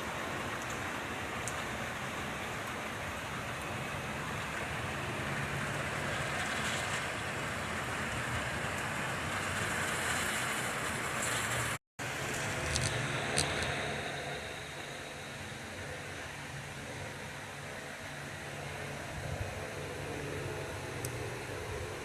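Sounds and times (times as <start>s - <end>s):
heavy rain falling: 0.0s - 16.6s.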